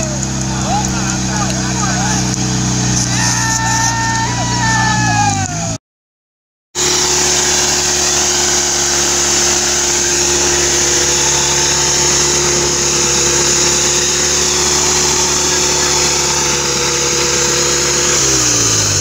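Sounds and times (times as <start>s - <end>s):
engine running at high revs: 0.0s - 5.8s, 6.8s - 19.0s
wheel spinning in mud: 0.0s - 5.8s, 6.8s - 19.0s.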